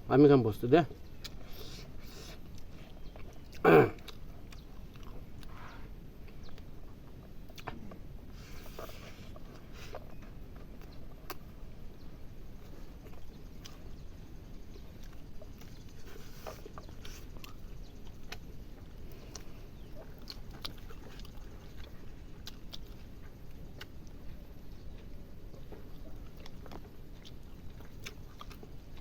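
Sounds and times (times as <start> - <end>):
low background rumble: 0.0 - 29.0
person chewing: 1.1 - 11.8, 12.5 - 29.0.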